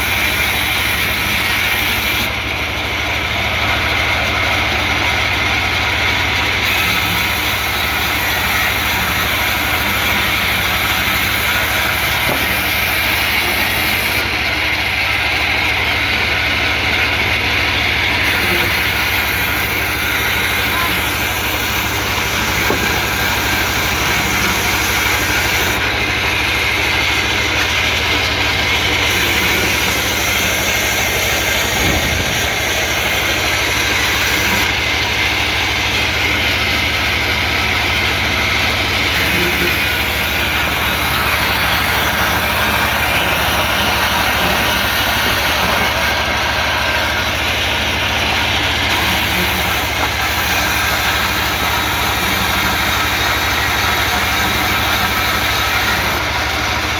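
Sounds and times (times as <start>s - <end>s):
sawmill engine humming: 0.0s - 56.9s.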